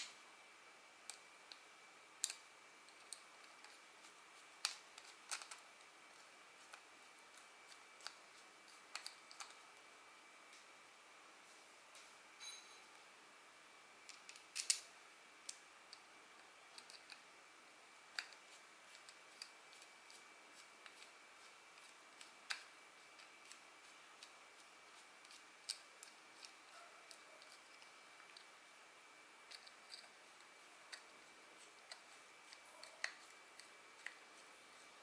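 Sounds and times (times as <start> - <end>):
small reel parts clicking and tapping: 1.0 - 9.9, 14.0 - 17.3, 18.0 - 28.6, 29.2 - 35.0
faint steady high tone: 12.4 - 13.0.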